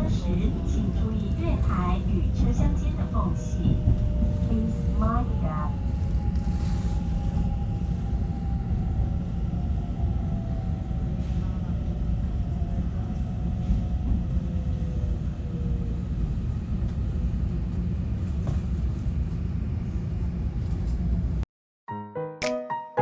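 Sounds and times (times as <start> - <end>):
electric train running rumble: 0.0 - 21.4
plucked-note music jingle: 21.9 - 23.0.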